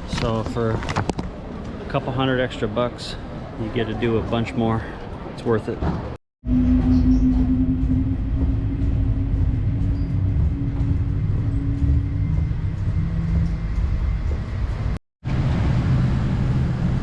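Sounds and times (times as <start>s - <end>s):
vehicle low rumble: 6.4s - 17.0s
vehicle hum: 6.5s - 17.0s.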